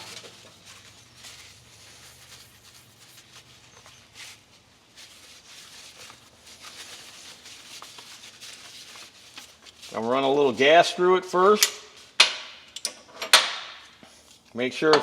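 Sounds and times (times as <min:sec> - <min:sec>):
faint rustling: 0:00.0 - 0:10.2.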